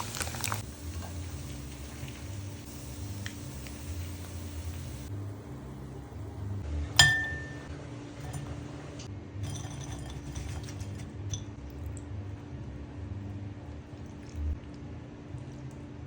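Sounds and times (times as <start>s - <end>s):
steady low hum: 0.0s - 16.0s
tableware clinking: 7.0s - 8.6s, 9.4s - 11.0s.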